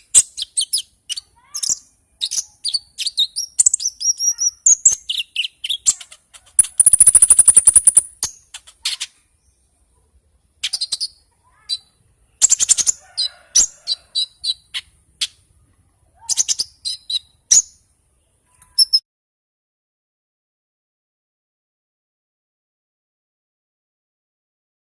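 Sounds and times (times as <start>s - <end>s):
songbird chirping and whistling: 0.1s - 9.6s, 10.6s - 15.4s, 16.2s - 17.8s, 18.7s - 19.0s.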